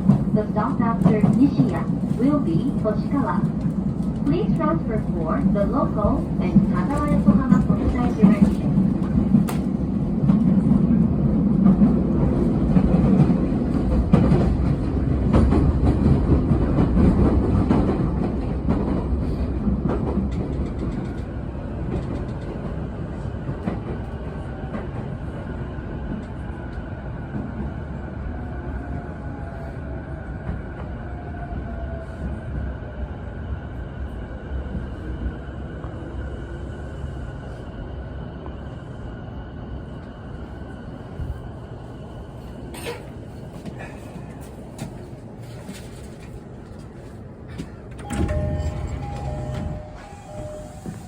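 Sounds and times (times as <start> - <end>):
train wheels clattering on rails: 0.0 - 25.2, 42.8 - 51.0.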